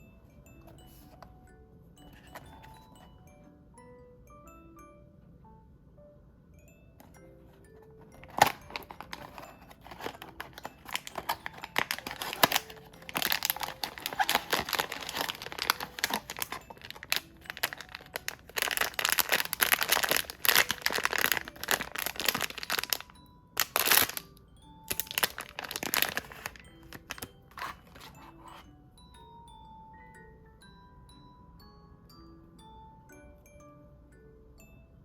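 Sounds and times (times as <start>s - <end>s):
soft chiming background music: 0.0s - 35.0s
packaging crinkling and tearing: 8.2s - 24.3s, 24.9s - 28.2s.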